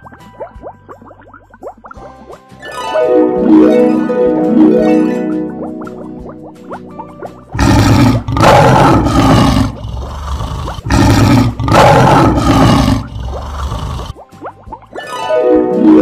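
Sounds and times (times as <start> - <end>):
lion roaring: 7.6 - 14.2.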